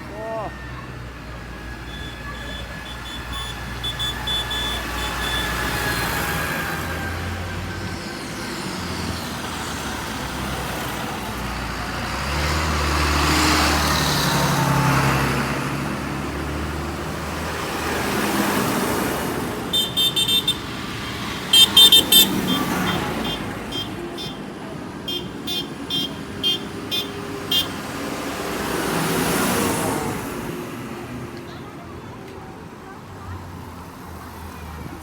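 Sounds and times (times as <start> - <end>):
tractor diesel engine rumbling: 0.0 - 33.0
high-pitched horn toots: 1.8 - 6.1, 19.7 - 20.9, 21.5 - 24.5, 25.1 - 27.8.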